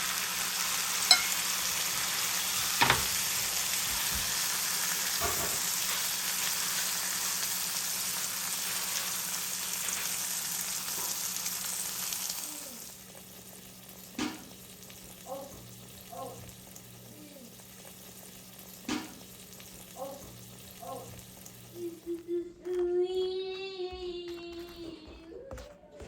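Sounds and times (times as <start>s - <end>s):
food sizzling in a hot pan: 0.0s - 22.2s.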